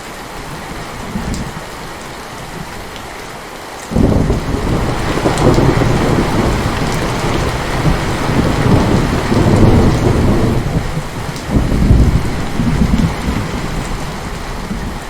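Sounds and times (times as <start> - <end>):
heavy rain: 0.0 - 15.0
thunder rumbling: 3.9 - 15.0.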